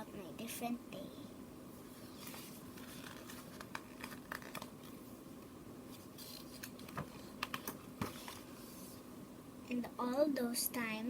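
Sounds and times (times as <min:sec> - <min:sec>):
book pages turning: 0:02.0 - 0:05.1, 0:05.9 - 0:09.0.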